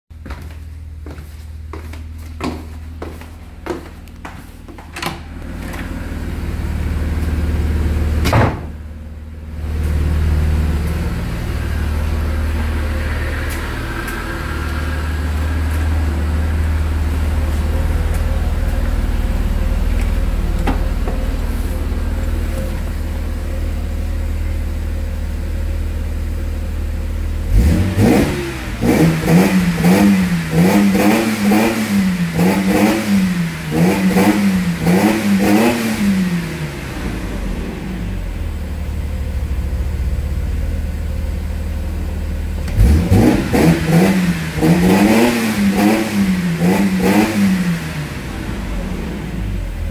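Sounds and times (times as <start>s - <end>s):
car engine idling: 0.7s - 49.9s
engine revving in throttle blips: 27.4s - 38.4s, 42.6s - 49.9s.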